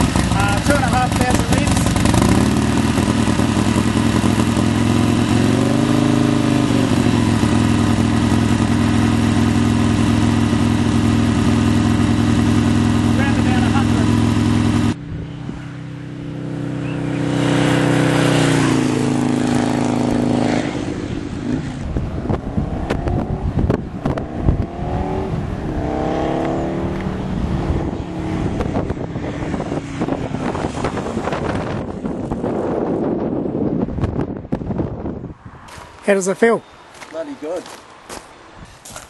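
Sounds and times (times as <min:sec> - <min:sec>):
motorcycle engine revving: 0:00.0 - 0:34.4
wind noise: 0:14.2 - 0:16.5, 0:17.2 - 0:36.0, 0:38.5 - 0:39.0.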